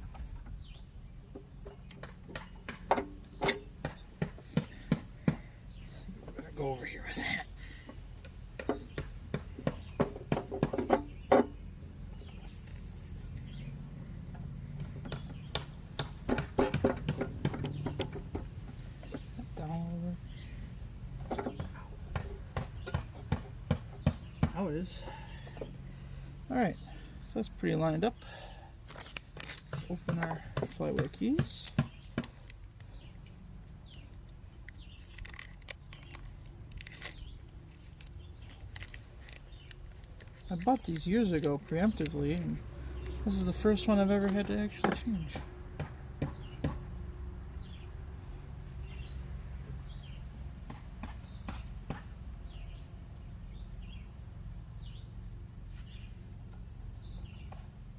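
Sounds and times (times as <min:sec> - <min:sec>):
package crinkling and tearing: 0:35.0 - 0:42.2.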